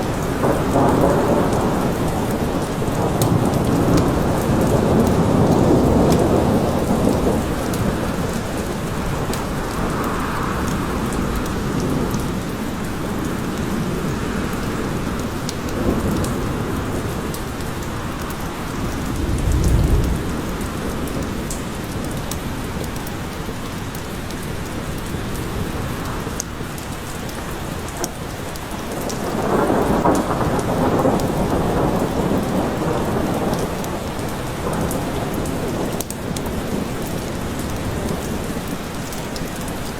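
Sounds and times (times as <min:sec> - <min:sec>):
thunder rumbling: 0:00.0 - 0:14.0, 0:18.0 - 0:21.6, 0:28.9 - 0:36.9
steady rain: 0:00.0 - 0:39.9.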